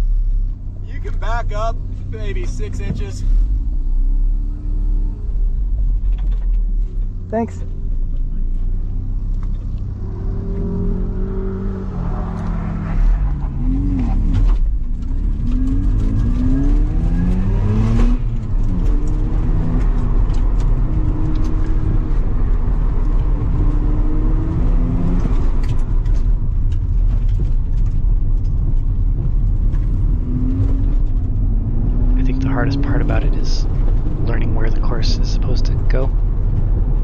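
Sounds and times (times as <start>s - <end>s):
rotary engine revving: 9.6s - 26.2s, 29.2s - 36.1s.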